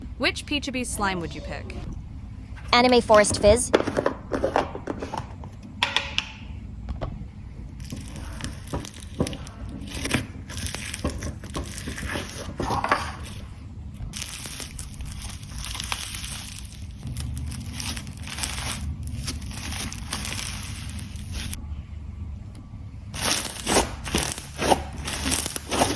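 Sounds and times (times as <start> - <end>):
slime squished by hand: 7.8 - 13.5, 14.1 - 21.6, 23.1 - 25.9.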